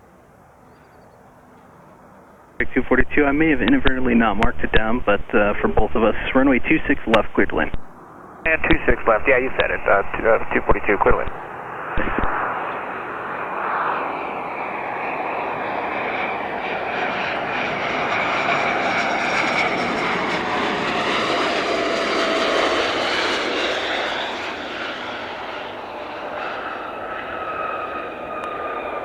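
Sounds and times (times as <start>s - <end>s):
jet engine whine: 0.0s - 29.0s
rushing noise: 2.6s - 15.5s.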